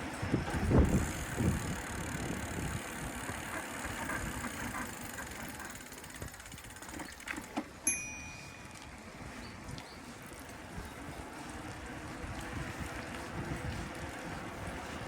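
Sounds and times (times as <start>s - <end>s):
low wind: 0.0s - 15.0s
road rumble: 0.0s - 15.0s
bicycle freewheel ticking: 0.1s - 8.7s.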